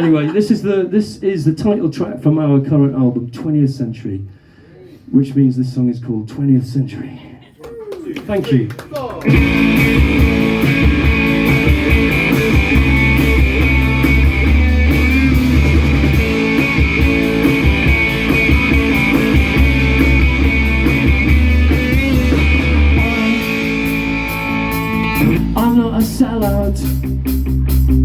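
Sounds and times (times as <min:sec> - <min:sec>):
bass guitar: 0:09.2 - 0:28.0
drum kit beat: 0:09.2 - 0:28.0
electric guitars: 0:09.2 - 0:28.0.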